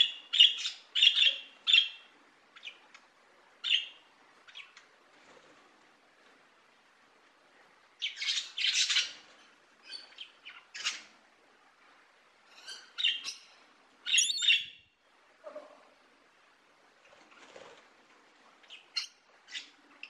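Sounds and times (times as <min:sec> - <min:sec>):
bird short high calls: 0:14.1 - 0:14.8.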